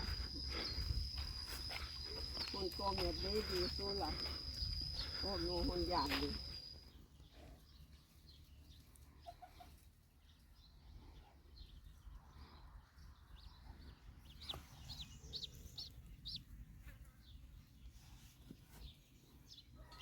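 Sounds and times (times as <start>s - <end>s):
ducklings peeping: 9.2s - 10.4s, 13.4s - 16.5s.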